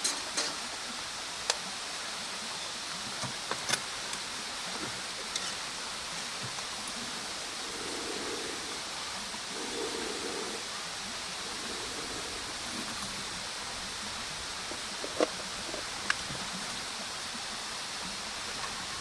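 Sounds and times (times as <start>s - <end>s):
bonfire hissing: 1.2s - 19.0s
fire popping: 6.5s - 16.4s.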